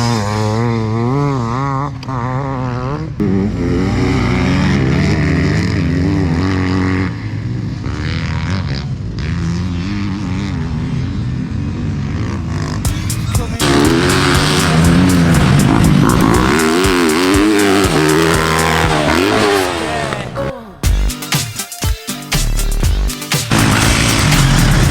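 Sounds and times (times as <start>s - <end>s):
dirt bike engines revving: 0.0s - 21.0s, 22.3s - 24.9s.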